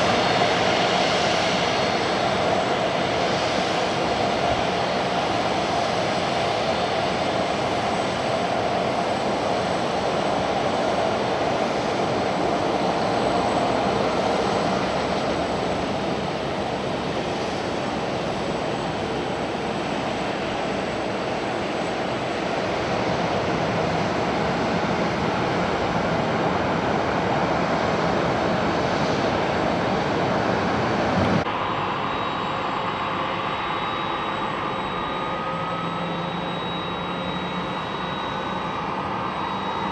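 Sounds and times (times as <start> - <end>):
jet engines roaring: 0.0 - 39.9
engine whine rising in pitch: 13.4 - 39.9.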